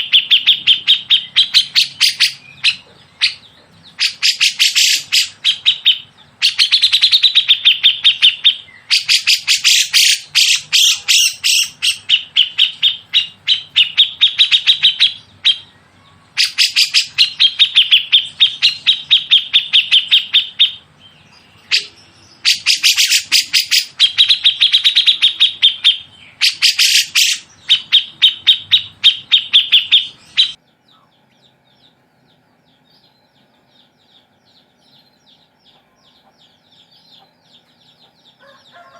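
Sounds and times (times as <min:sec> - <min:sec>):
songbird chattering: 0:00.0 - 0:38.9.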